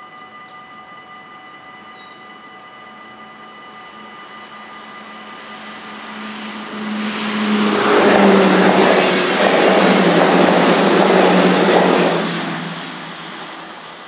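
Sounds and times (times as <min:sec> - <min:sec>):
electric train passing: 0:00.0 - 0:14.0
low hum dropping in pitch: 0:04.2 - 0:13.8.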